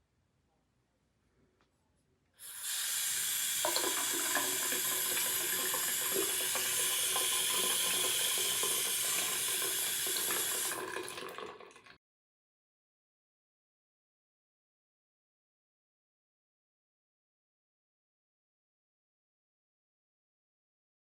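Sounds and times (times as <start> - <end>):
faucet water pouring into sink: 2.4 - 12.0.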